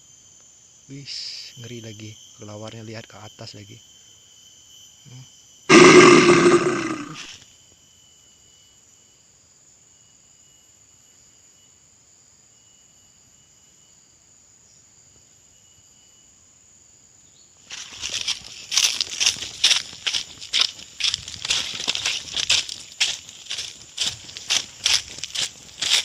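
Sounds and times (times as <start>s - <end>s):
insect trilling: 5.1s - 7.3s.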